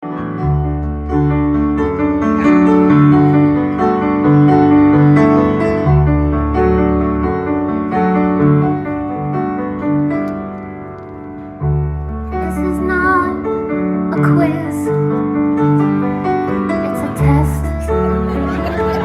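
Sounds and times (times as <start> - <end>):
solo piano: 0.0 - 19.0.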